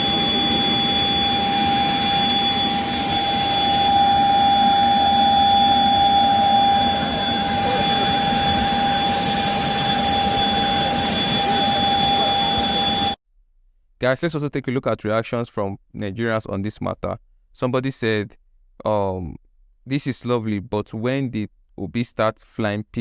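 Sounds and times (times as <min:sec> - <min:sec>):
jet engines whining: 0:00.0 - 0:13.2.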